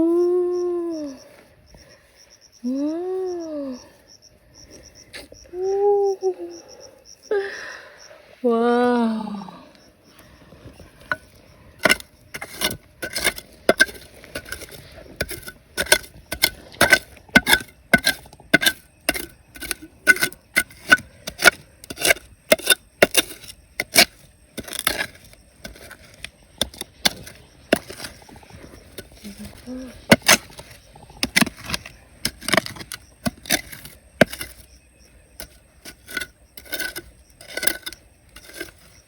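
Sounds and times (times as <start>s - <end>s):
digging tool striking rock: 11.0s - 39.0s.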